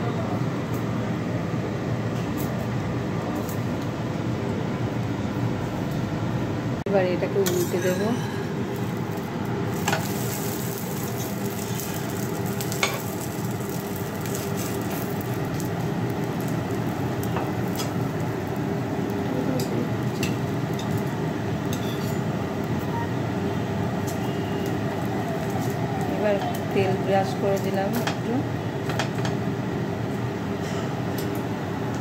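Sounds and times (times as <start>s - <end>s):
flatbread sizzling on a pan: 8.4s - 28.0s.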